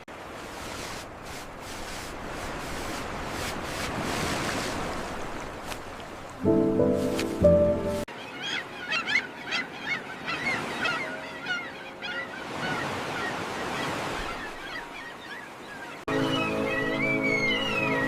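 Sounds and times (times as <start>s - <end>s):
surf waves washing: 0.0s - 8.2s.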